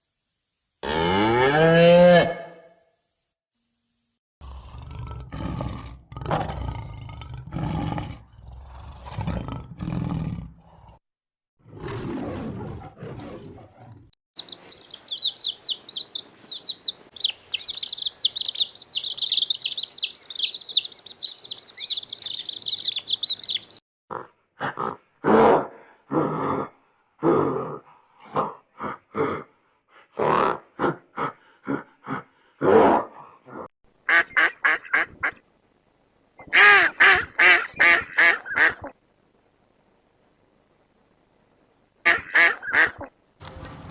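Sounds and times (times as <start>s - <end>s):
low rough grunting calls: 4.4s - 11.0s
small birds chirping: 14.4s - 23.8s.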